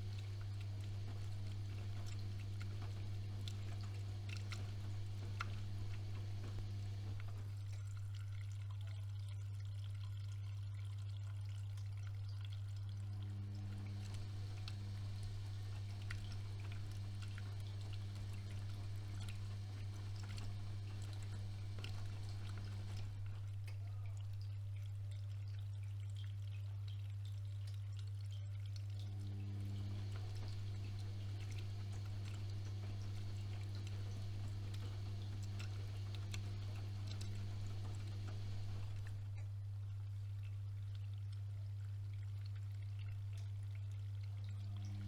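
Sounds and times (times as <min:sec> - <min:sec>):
washing machine drum motor: 0:00.0 - 0:08.1, 0:12.4 - 0:24.9, 0:29.0 - 0:39.6, 0:44.5 - 0:45.0
water splashing in washing machine drum: 0:00.0 - 0:26.3, 0:28.8 - 0:39.5.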